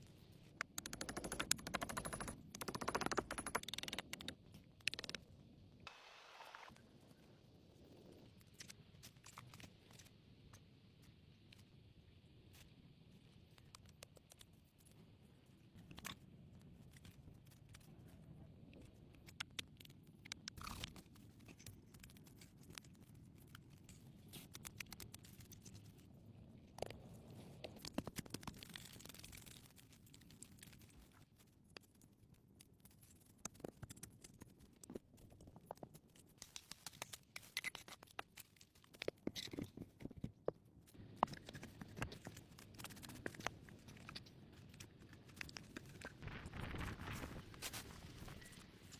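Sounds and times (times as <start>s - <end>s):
hands crunching and scraping materials: 15.8s - 48.9s.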